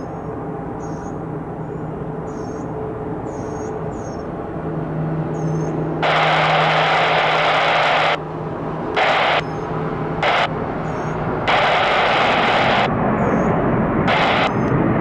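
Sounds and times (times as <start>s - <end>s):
steady low hum: 0.0s - 15.0s
radio static bursts: 6.0s - 8.2s, 8.9s - 12.9s, 14.0s - 14.7s.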